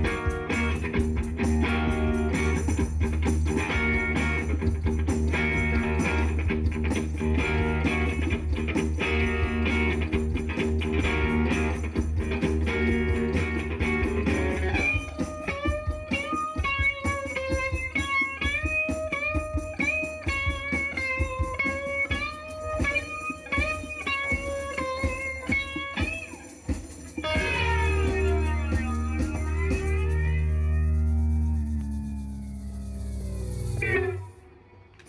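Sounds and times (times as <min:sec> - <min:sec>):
full band playing: 0:00.0 - 0:33.1
electric guitar lead with string bends: 0:00.0 - 0:35.0.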